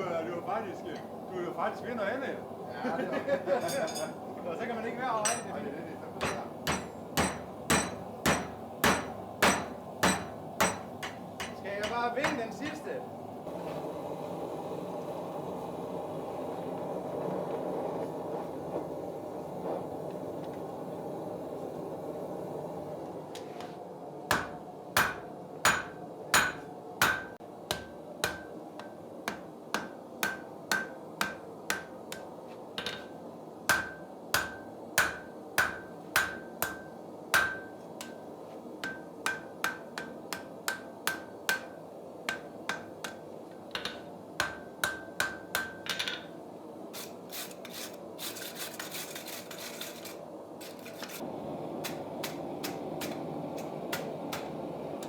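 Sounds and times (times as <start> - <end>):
hammer striking iron on anvil: 5.2 - 5.5, 6.2 - 12.8, 24.3 - 33.1, 33.7 - 38.2, 38.8 - 43.2, 43.8 - 46.3
metal scraping: 47.0 - 51.2.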